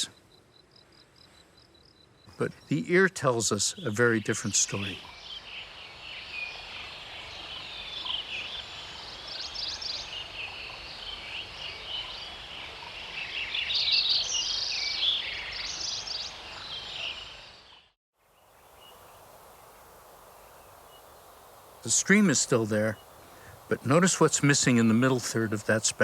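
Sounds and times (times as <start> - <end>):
songbirds chirping and trilling: 0.0 - 26.0
stream rushing: 18.7 - 26.0.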